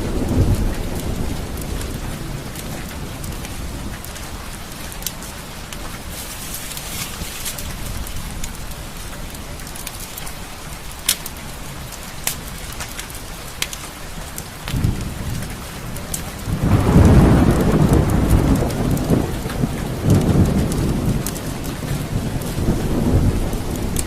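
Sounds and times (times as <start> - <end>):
rumble of thunder: 0.0 - 6.1, 14.6 - 24.0
steady rain falling: 0.0 - 24.0.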